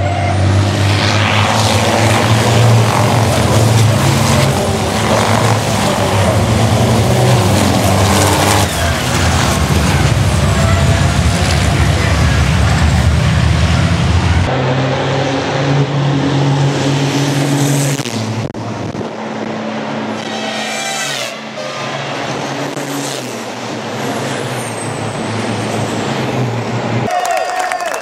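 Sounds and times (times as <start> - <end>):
truck engines running hard: 0.0 - 27.1.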